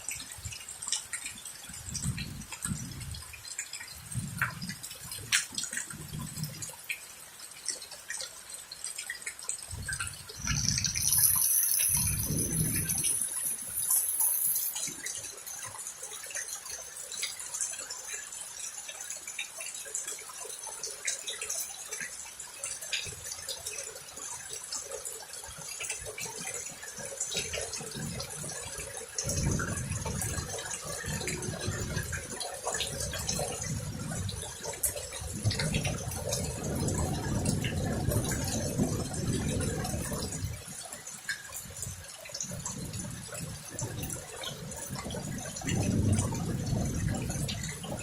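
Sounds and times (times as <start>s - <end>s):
heavy rain falling and dripping: 0.0s - 48.0s
rain drop ticks: 0.0s - 48.0s
low thunder rumbling: 9.8s - 14.8s, 29.3s - 40.6s, 45.0s - 48.0s.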